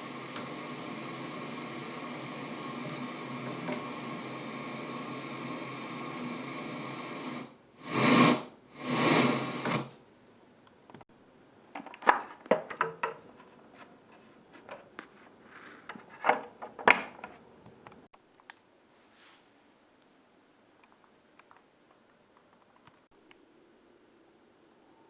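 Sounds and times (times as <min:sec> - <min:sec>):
television static hiss: 0:00.0 - 0:13.2
clicks and knocks: 0:11.8 - 0:13.5.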